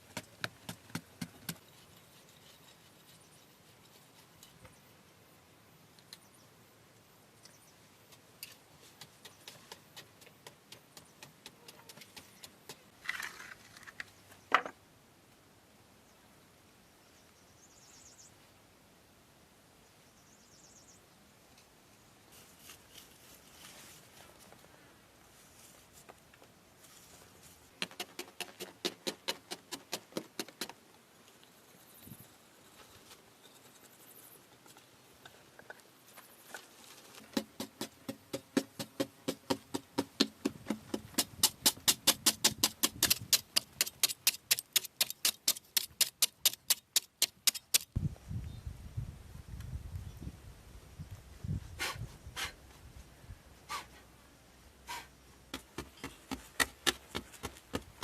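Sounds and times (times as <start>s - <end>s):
faint scratching and rustling: 1.6s - 4.8s, 22.3s - 29.5s, 30.5s - 37.5s.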